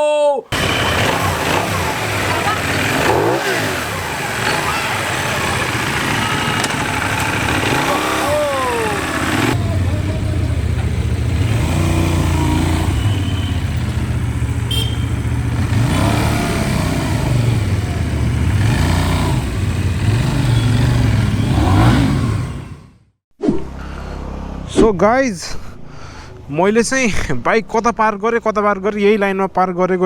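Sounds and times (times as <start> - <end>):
motorcycle engine revving: 0.5 - 23.2.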